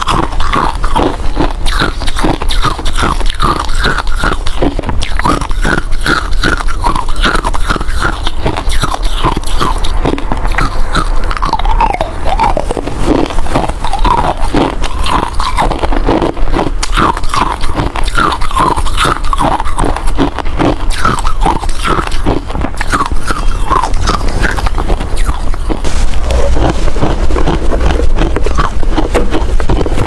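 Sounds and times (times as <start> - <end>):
ice being chewed: 0.0 - 30.0.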